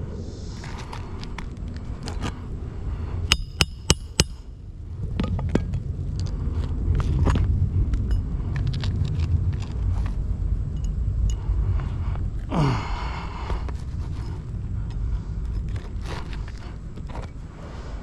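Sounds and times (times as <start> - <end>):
low rumble: 0.0 - 18.0
scuffs and clicks: 0.5 - 2.4
sharp ringing clinks: 3.3 - 4.5.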